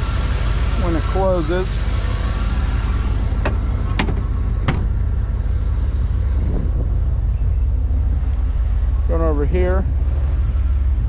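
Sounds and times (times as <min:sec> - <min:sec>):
car engine idling: 0:00.0 - 0:11.0
car body panel shutting: 0:03.4 - 0:05.0.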